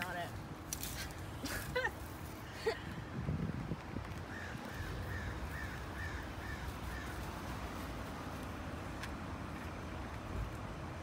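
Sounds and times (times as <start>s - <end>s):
bird calling: 4.3s - 7.3s.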